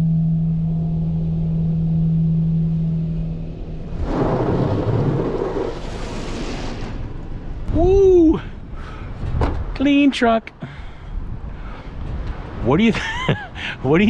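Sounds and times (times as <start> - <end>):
car wash machine hum: 0.8 - 7.8.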